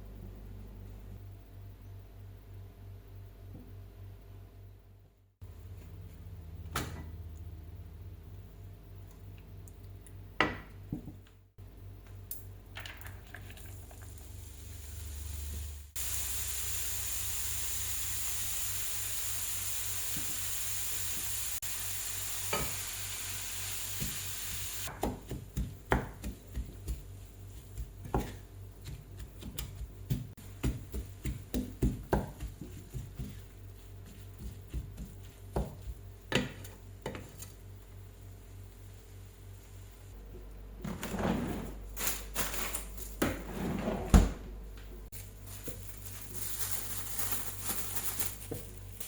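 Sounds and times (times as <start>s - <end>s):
onion sizzling in a pan: 14.0s - 26.6s.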